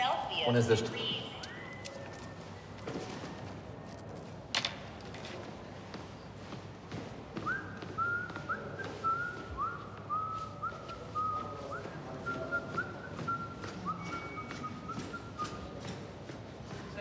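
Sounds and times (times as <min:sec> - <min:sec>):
person whistling a tune: 0:07.4 - 0:15.8.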